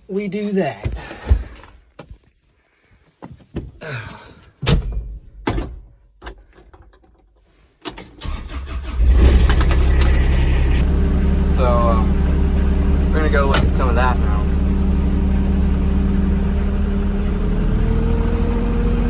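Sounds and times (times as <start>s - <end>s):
knocks and clunks: 4.6s - 7.3s, 9.1s - 10.8s, 13.4s - 14.3s
engine cranking and idling: 8.0s - 19.0s.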